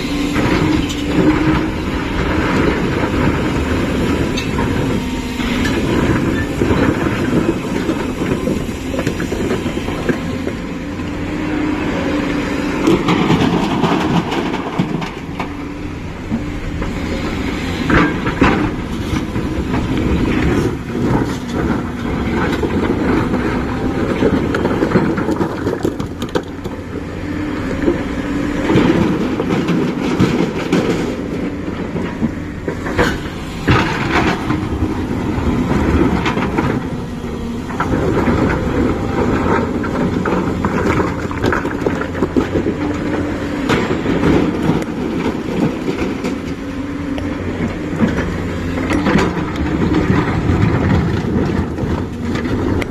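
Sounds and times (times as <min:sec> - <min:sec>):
diesel engine running under load: 0:00.0 - 0:52.9
machine clanking and rattling: 0:12.7 - 0:27.0, 0:27.7 - 0:52.9.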